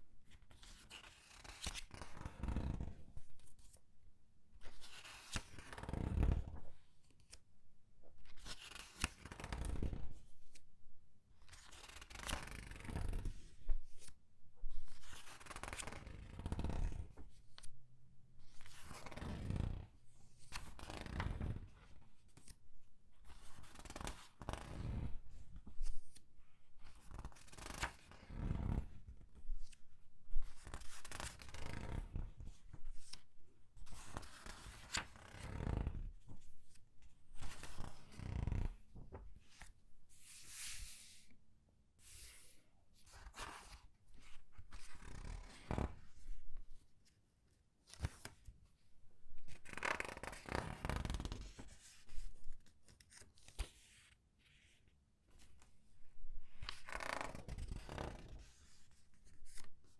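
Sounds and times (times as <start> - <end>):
pages turning and crinkling: 33.9 - 35.1, 38.6 - 41.3.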